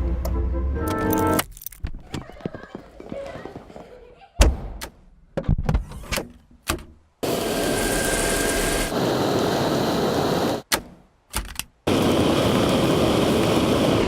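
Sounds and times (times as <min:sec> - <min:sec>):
vacuum cleaner motor whooshing: 0:07.2 - 0:10.6
clicks and knocks of handling: 0:11.3 - 0:11.8.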